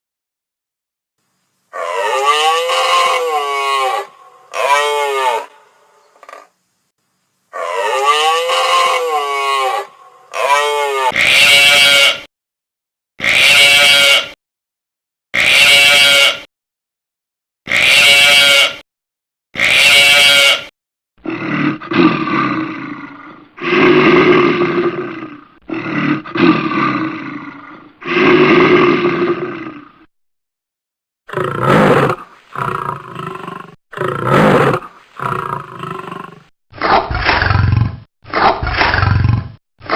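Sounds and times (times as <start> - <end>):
longer lower animal calls: 1.7 - 6.5, 7.5 - 12.3, 13.2 - 14.4, 15.4 - 16.5, 17.7 - 18.8, 19.6 - 21.4.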